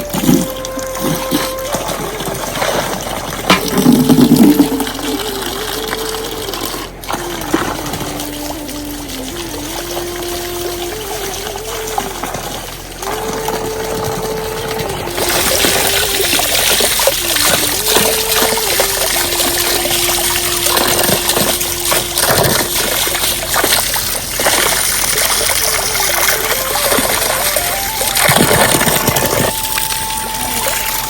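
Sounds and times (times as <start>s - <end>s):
water splashing: 0.0s - 31.0s
heavy rain: 25.0s - 31.0s
faint held tone melody: 25.6s - 31.0s.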